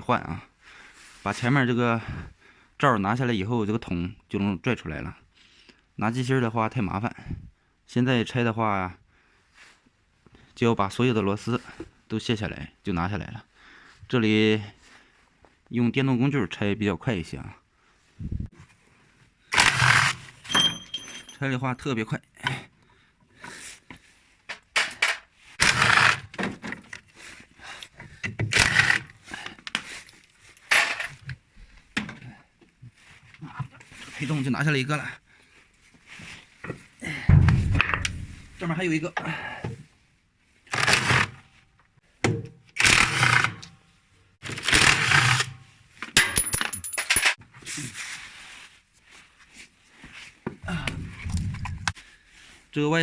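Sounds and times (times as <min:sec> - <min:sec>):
metal parts knocking: 0:20.4 - 0:21.4, 0:30.7 - 0:31.2
power driver unscrewing bolts: 0:30.6 - 0:31.2
electric impact wrench bursts: 0:42.8 - 0:43.5.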